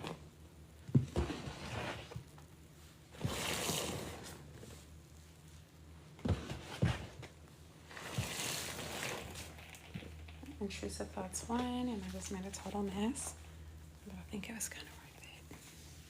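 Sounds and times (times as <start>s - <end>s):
sponge squishing in water: 7.8s - 9.7s.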